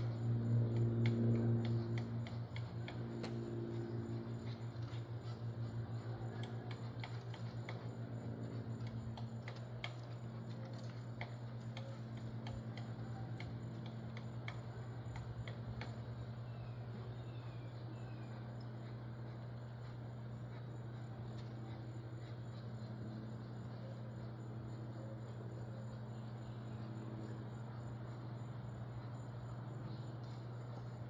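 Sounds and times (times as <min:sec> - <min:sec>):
sharp irregular clicks: 0:00.0 - 0:17.1
woodpecker pecking: 0:00.0 - 0:28.6.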